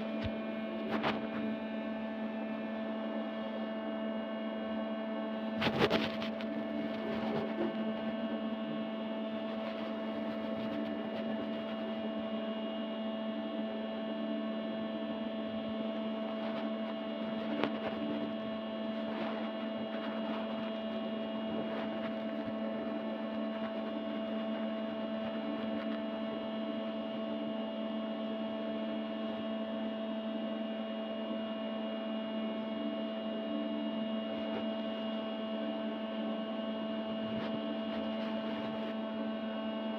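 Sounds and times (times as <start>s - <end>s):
steady multi-tone hum: 0.0s - 39.9s.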